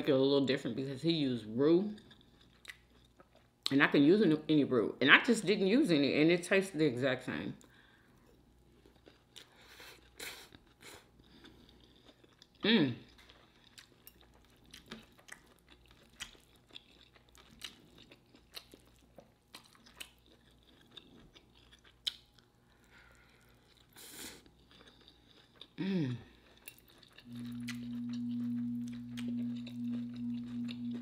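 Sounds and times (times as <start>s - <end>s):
person chewing food: 2.0s - 3.5s, 8.2s - 31.0s
short voice hum: 27.3s - 31.0s
steady low tone: 27.3s - 31.0s.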